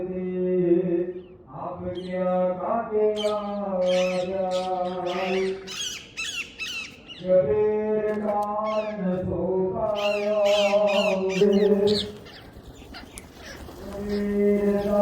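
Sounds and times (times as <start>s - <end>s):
chanting with music: 0.0s - 15.0s
parrots squawking: 3.2s - 7.2s, 10.0s - 15.0s.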